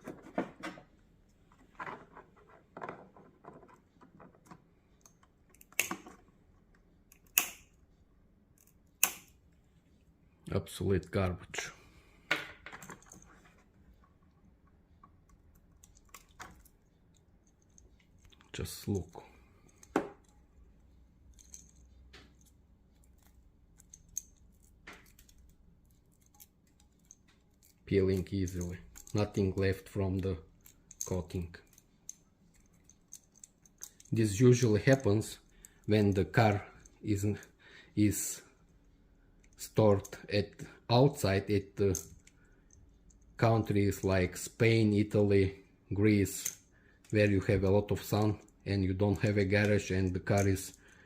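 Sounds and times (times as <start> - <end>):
rustling clicks of handling wires: 0.0 - 7.8, 12.3 - 37.4.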